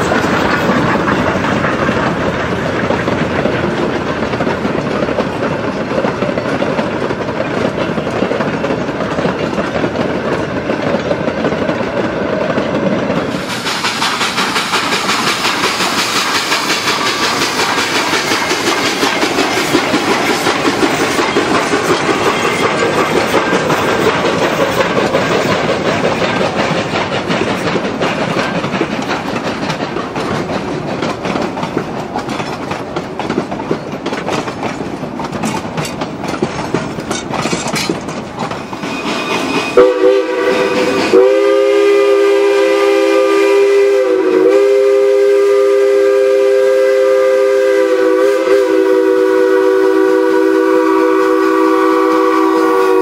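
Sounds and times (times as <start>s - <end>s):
wheels clicking over rail joints: 0.0s - 39.8s
train coaches rumbling past: 0.0s - 53.0s.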